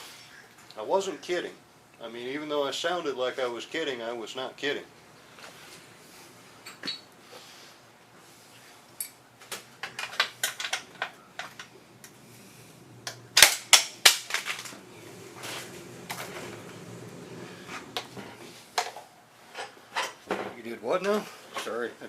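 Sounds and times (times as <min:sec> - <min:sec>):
rustling: 0:14.1 - 0:20.2.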